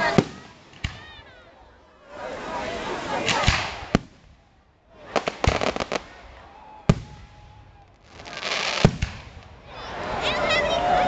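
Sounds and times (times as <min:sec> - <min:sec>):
fireworks bangs: 0:00.0 - 0:01.4, 0:03.2 - 0:04.4, 0:05.0 - 0:10.4.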